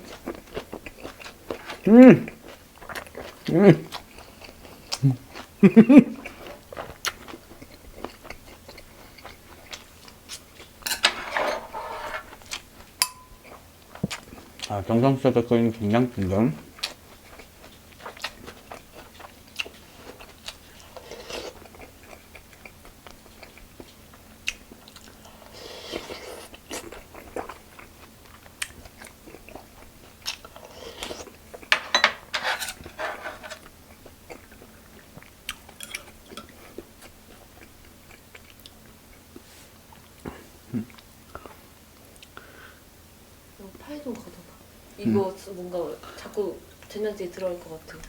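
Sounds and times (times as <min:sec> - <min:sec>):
person chewing and crunching food: 0:00.0 - 0:10.9, 0:12.2 - 0:14.8, 0:16.6 - 0:31.7, 0:32.6 - 0:42.4
spoon and chopsticks clinking dishes: 0:10.8 - 0:12.2, 0:13.0 - 0:13.5, 0:31.7 - 0:33.6.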